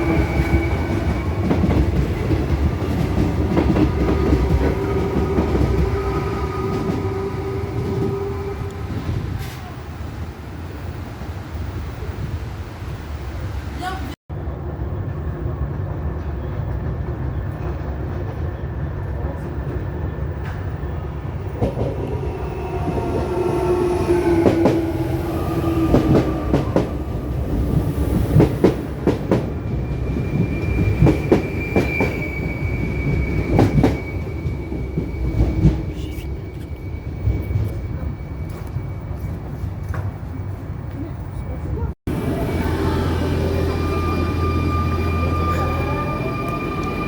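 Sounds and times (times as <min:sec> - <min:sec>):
electric train rumbling past: 0:00.0 - 0:47.0
high-pitched wheel squeal: 0:29.7 - 0:39.4, 0:42.4 - 0:47.0.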